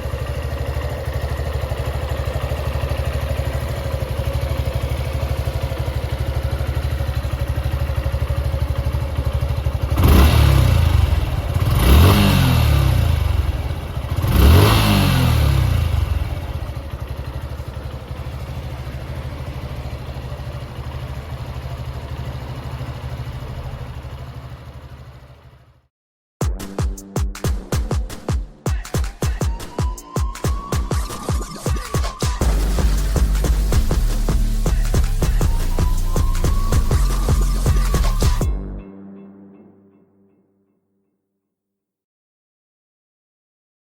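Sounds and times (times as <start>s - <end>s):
motorcycle engine revving: 0.0s - 25.7s, 32.4s - 38.7s
motorcycle engine idling: 0.0s - 25.8s, 30.6s - 38.7s.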